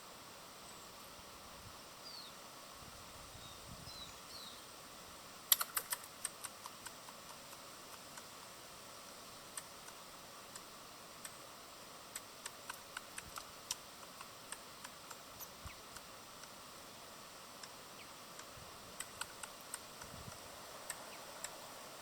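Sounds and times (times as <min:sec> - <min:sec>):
faint high bird chirps: 0:02.0 - 0:02.4, 0:03.4 - 0:04.7
birds pecking at a feeder: 0:05.5 - 0:08.4, 0:09.2 - 0:22.0.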